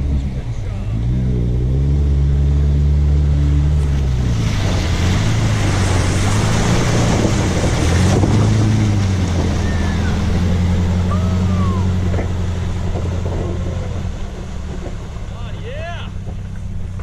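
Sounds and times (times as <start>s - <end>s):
suv engine running: 0.0s - 17.0s
water rushing and splashing: 2.4s - 17.0s.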